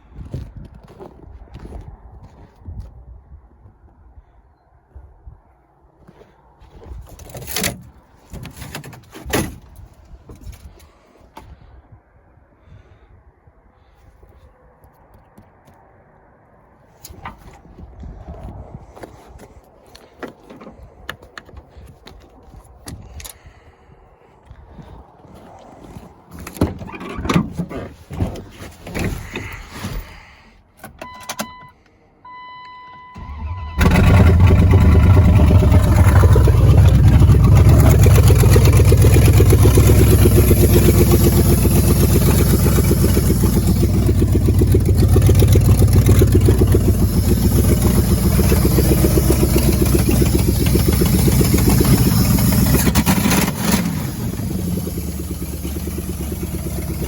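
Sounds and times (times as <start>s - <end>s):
knocks and clunks: 7.1s - 10.5s, 26.3s - 30.2s
car engine starting and running: 32.4s - 57.0s.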